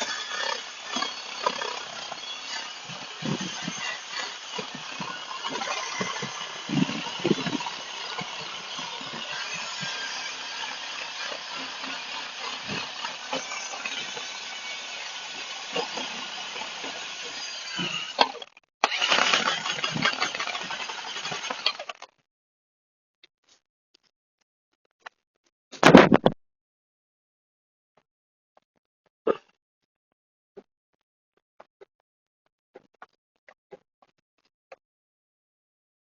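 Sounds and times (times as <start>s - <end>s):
power tool grinding metal: 0.0s - 22.1s.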